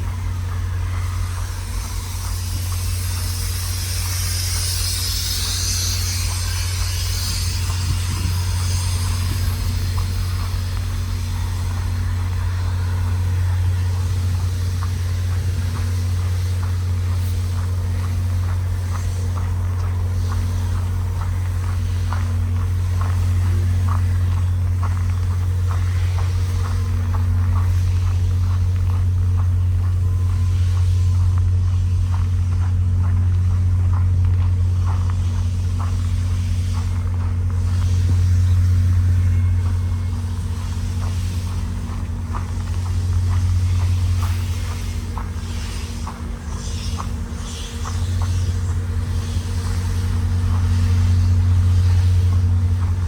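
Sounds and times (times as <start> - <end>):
idling diesel locomotive hum: 0.0 - 53.0.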